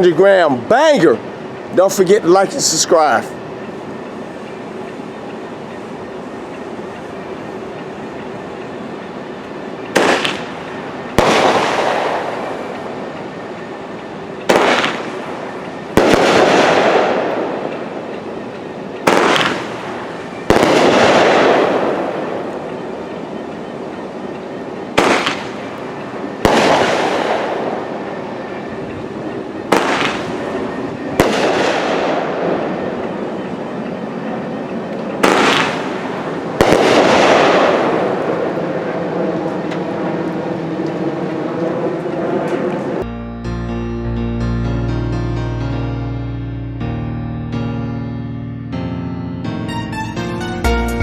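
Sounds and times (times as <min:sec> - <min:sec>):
loud aerial firework bangs: 0:10.0 - 0:10.5, 0:11.2 - 0:12.6, 0:14.5 - 0:15.2, 0:16.0 - 0:17.3, 0:19.1 - 0:19.8, 0:20.5 - 0:22.0, 0:25.0 - 0:25.6, 0:26.4 - 0:27.7, 0:29.7 - 0:30.4, 0:31.2 - 0:32.4, 0:35.2 - 0:38.5.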